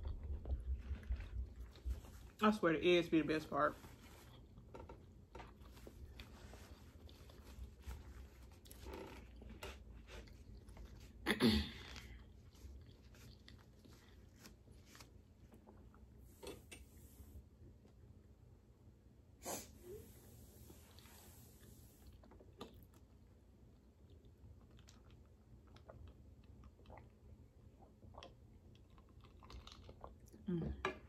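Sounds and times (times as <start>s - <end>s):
chewing and lip smacking: 22.0s - 30.4s.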